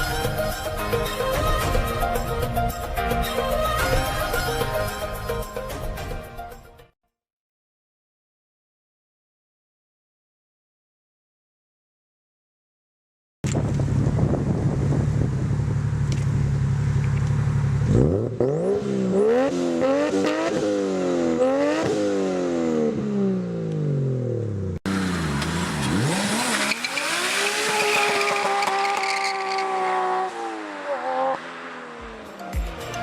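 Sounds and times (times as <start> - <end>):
car engine revving: 14.7 - 33.0.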